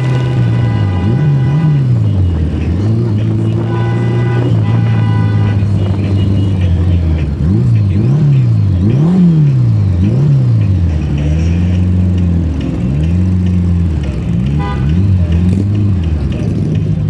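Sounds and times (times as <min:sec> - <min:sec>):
horn toot: 0:00.0 - 0:09.4, 0:14.4 - 0:15.7
motorcycle engines revving: 0:00.0 - 0:17.0.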